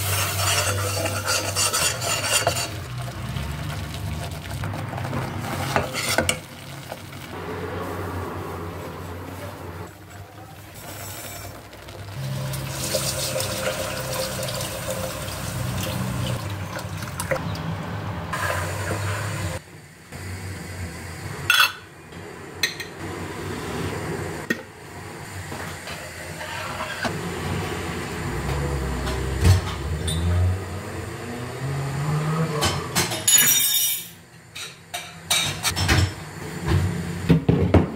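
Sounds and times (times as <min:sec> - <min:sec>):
water running: 0:11.9 - 0:17.4.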